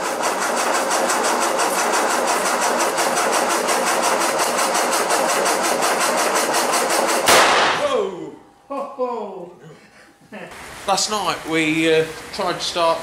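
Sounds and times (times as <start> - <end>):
petrol engine running: 0.0 - 7.2.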